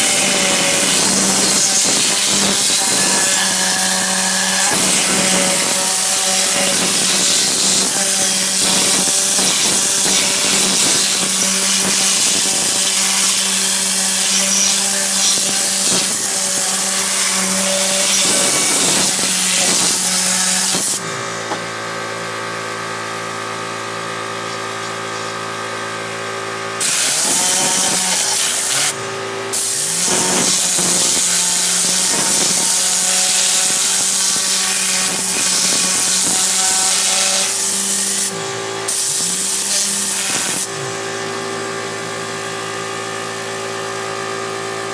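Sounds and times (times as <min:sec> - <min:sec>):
air gun hissing: 0:00.0 - 0:21.6, 0:26.8 - 0:40.8.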